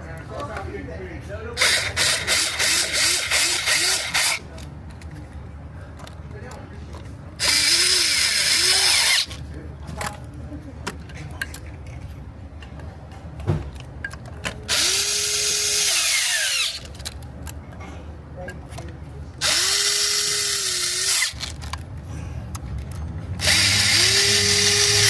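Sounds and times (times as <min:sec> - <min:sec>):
power tool motor spinning: 0:01.6 - 0:04.4, 0:07.4 - 0:09.4, 0:14.7 - 0:17.0, 0:19.4 - 0:21.6, 0:23.4 - 0:25.0.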